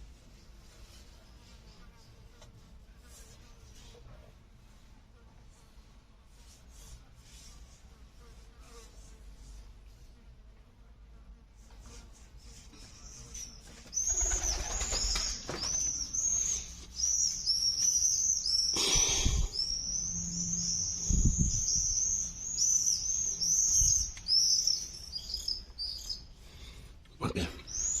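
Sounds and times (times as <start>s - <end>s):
small bird chirping: 13.0s - 26.4s, 27.6s - 28.0s.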